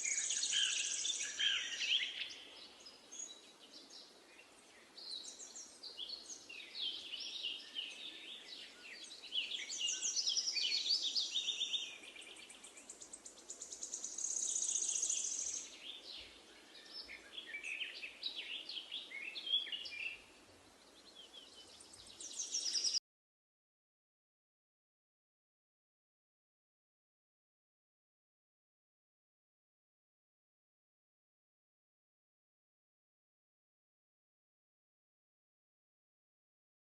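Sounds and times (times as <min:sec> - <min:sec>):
songbirds chirping and singing: 0:00.0 - 0:23.0.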